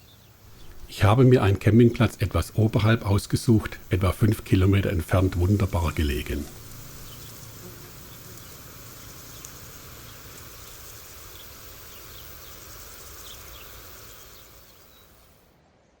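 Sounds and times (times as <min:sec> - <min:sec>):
faint high chirps: 0:00.0 - 0:15.4
steady outdoor hiss: 0:00.0 - 0:16.0.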